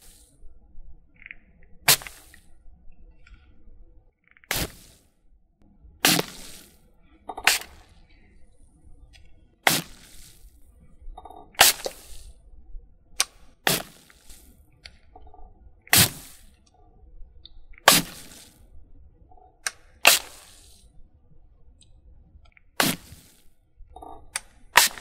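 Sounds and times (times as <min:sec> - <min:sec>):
sharp cracks with hiss: 0:15.9 - 0:16.5, 0:20.0 - 0:20.8, 0:24.8 - 0:25.0.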